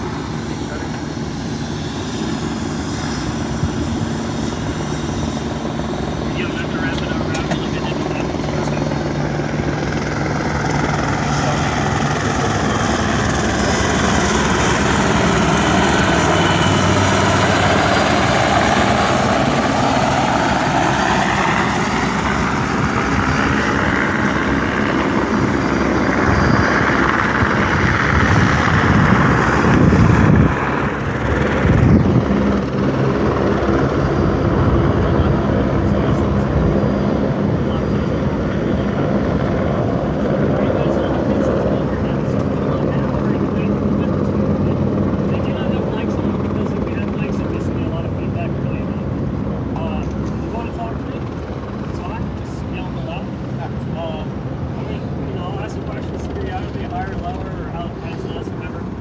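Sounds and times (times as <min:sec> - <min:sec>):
helicopter engine and rotor: 0:00.0 - 0:59.0.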